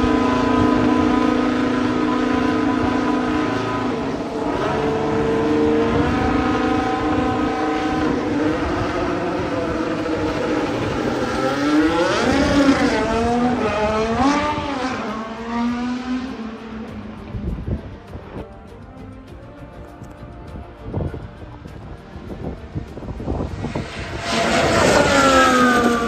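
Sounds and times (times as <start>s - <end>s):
racing car engine at high revs: 0.0s - 18.5s, 22.1s - 26.0s.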